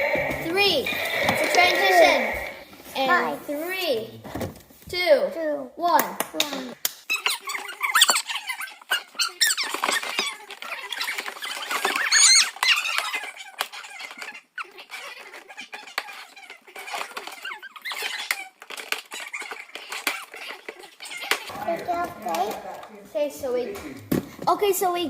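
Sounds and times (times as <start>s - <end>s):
packaging squeaking and rustling: 7.1s - 22.8s.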